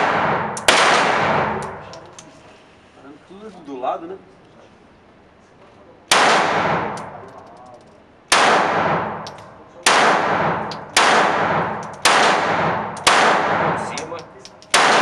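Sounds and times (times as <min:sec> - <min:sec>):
pistol shots with ringing echo: 0:00.0 - 0:02.0, 0:06.1 - 0:07.2, 0:08.3 - 0:15.0.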